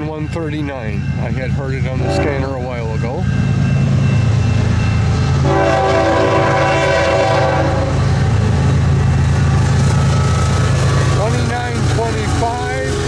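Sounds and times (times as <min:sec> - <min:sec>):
diesel locomotives rumbling: 0:00.0 - 0:13.0
locomotive horn chord: 0:01.9 - 0:02.6, 0:05.4 - 0:08.2.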